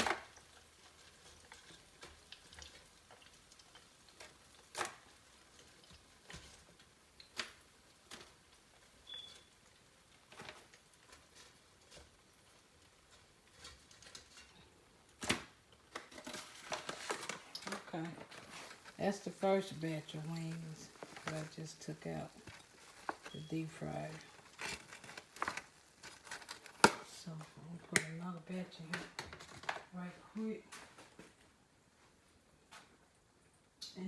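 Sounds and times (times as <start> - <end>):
chicken wings sizzling in oil: 0.0 - 27.0.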